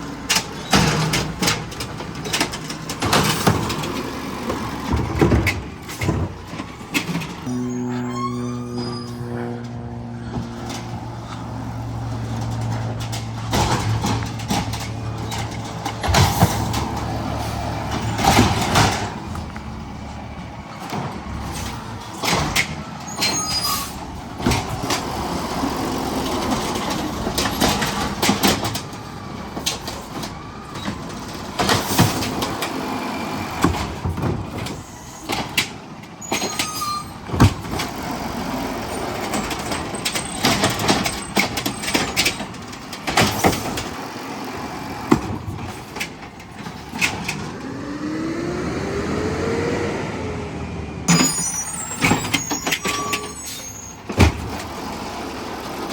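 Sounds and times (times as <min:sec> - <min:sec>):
garbage truck engine humming: 0:00.0 - 0:55.9
clanks and bangs: 0:00.2 - 0:32.9, 0:33.5 - 0:44.2
short whines: 0:07.4 - 0:10.4.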